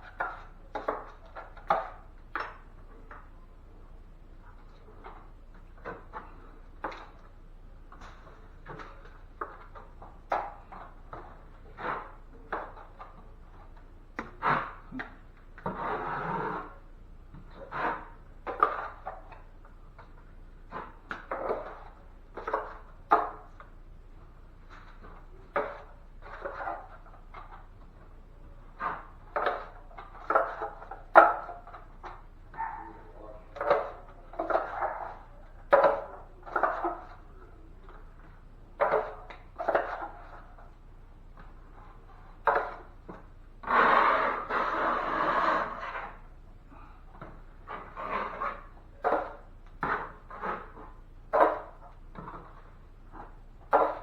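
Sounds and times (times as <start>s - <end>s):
drywall knife scraping mud pan: 8.1s - 23.6s, 41.7s - 46.3s, 47.6s - 54.0s.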